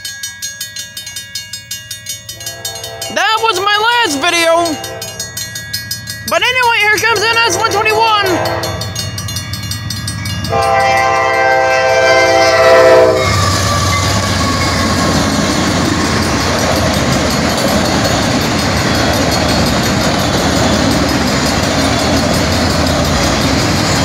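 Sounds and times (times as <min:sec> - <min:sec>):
locomotive air horn: 0:02.4 - 0:03.3, 0:04.7 - 0:05.2, 0:07.3 - 0:09.0, 0:10.5 - 0:13.6
freight cars rumbling and clacking: 0:03.0 - 0:11.6, 0:13.2 - 0:24.0.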